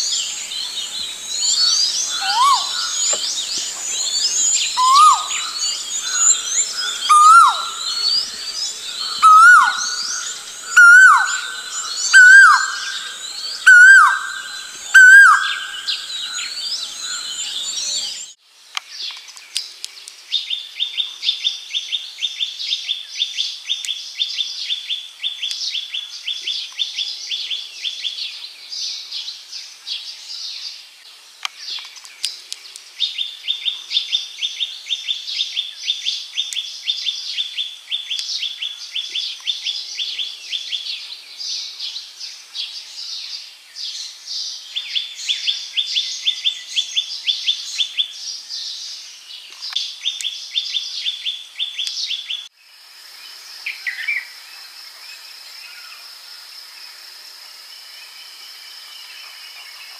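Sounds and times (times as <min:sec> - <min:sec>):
bird high trill: 0:00.0 - 0:18.3
bird chirps: 0:00.0 - 0:18.4.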